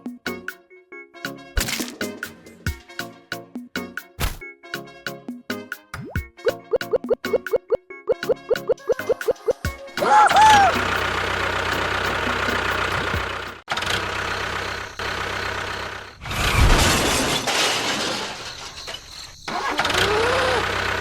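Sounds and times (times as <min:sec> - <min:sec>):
mini bulldozer motor running: 0:10.1 - 0:17.4, 0:18.2 - 0:21.0
wavering squeal: 0:18.3 - 0:20.7.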